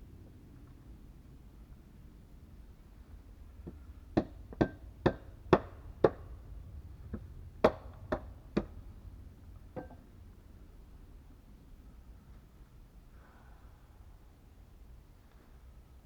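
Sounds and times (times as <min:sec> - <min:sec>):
tool striking wood: 0:03.7 - 0:06.2, 0:07.6 - 0:08.8, 0:09.8 - 0:10.0.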